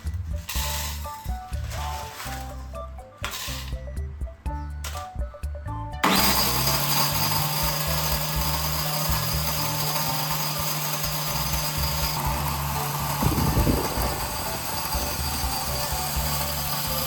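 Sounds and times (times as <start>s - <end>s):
background music: 0.0s - 17.0s
grinder motor whirring: 6.0s - 17.0s.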